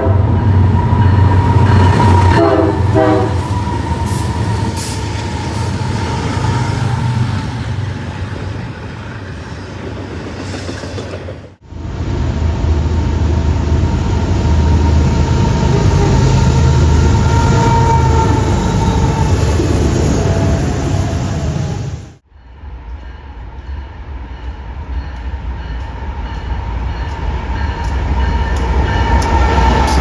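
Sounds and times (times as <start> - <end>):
train rumbling on rails: 0.0 - 30.0.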